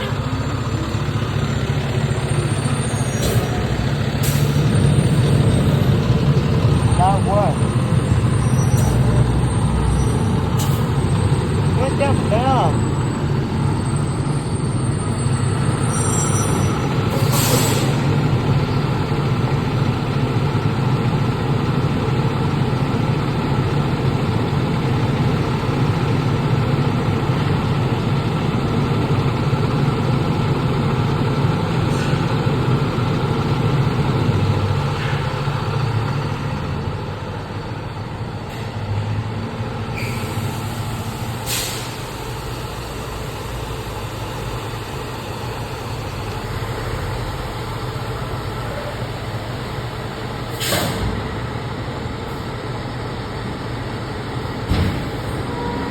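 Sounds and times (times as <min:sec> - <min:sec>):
heavy truck engine running: 0:00.0 - 0:55.9
air brakes hissing: 0:02.2 - 0:04.8, 0:07.6 - 0:11.7, 0:13.9 - 0:18.2, 0:31.8 - 0:32.3, 0:39.9 - 0:43.6, 0:50.4 - 0:51.2.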